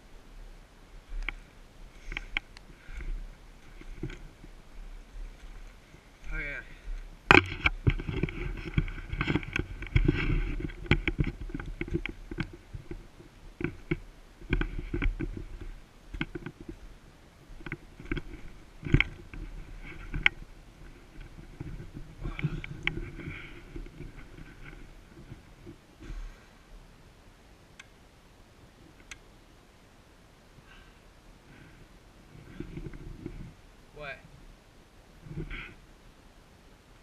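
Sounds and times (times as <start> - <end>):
low microphone handling rumble: 0.0 - 26.9, 31.5 - 34.6
footsteps through undergrowth: 1.0 - 13.1.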